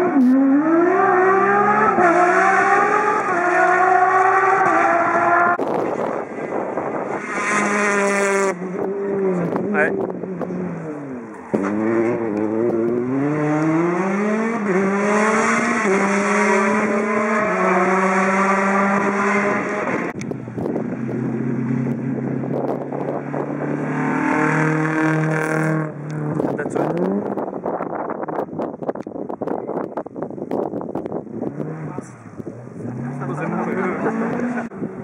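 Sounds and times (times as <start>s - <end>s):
rally car engine revving: 0.0s - 35.0s.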